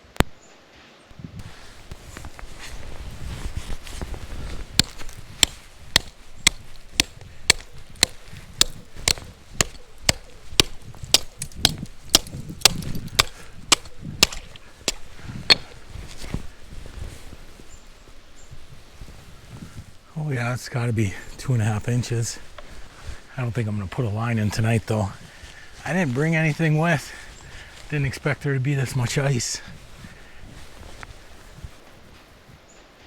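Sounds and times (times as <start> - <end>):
hand tool chopping ice: 4.8 - 15.8.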